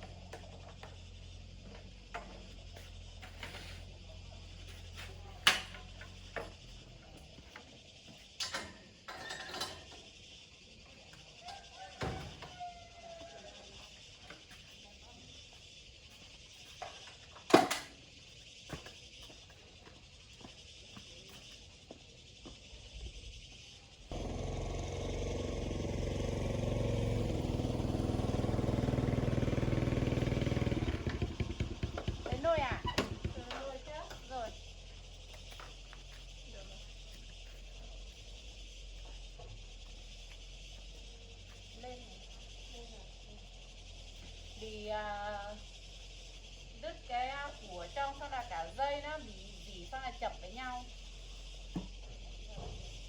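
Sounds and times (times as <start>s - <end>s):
motorcycle engine running: 24.1s - 40.0s.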